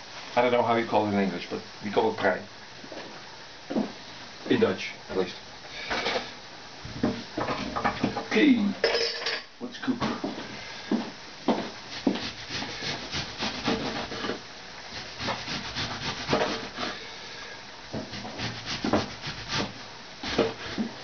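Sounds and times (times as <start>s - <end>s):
rubbing and scraping in kitchen: 11.6s - 17.2s, 18.0s - 21.0s.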